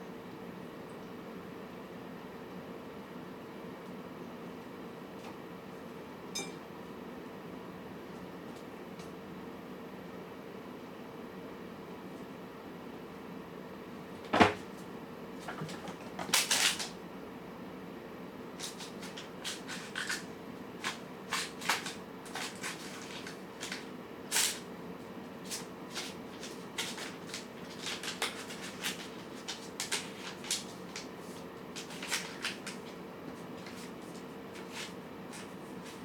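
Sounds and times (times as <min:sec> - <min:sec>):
cats crunching food: 0:25.6 - 0:33.0.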